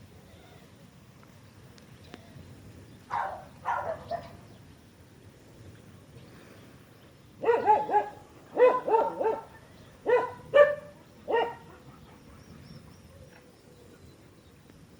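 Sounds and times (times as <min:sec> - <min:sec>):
dog barking: 0:03.1 - 0:04.4, 0:07.4 - 0:12.4.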